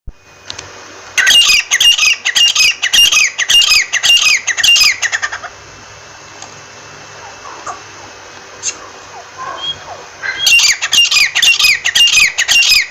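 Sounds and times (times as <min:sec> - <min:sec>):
bird giving sharp repeated calls: 0:01.2 - 0:05.6, 0:07.1 - 0:12.9.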